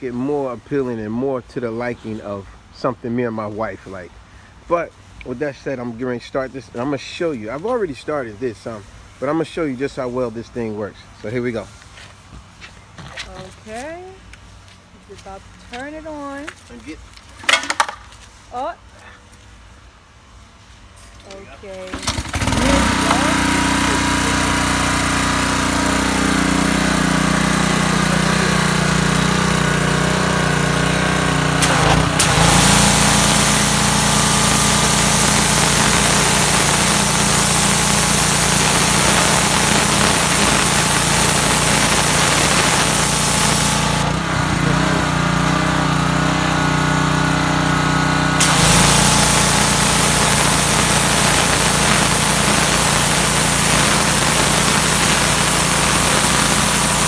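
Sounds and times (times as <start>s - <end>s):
high-pressure water jet hissing: 21.7s - 47.6s, 48.3s - 57.0s
pressure washer engine running: 21.7s - 57.0s.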